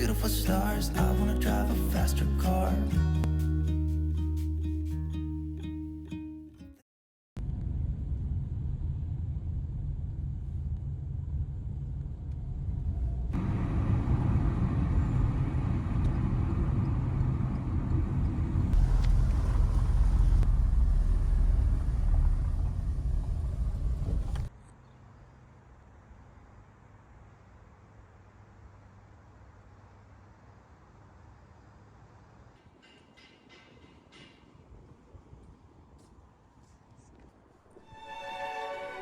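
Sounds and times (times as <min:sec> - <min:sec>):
road traffic rumble: 0:07.7 - 0:32.9.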